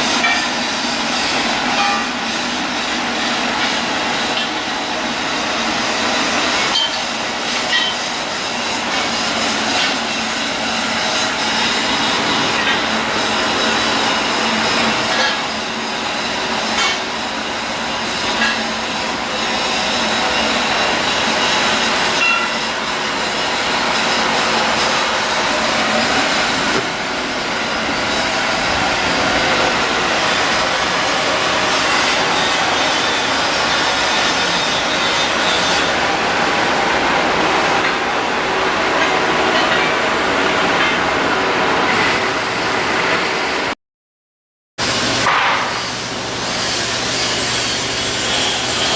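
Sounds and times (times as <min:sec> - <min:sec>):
shipyard machinery din: 0:00.0 - 0:43.8, 0:44.8 - 0:48.9.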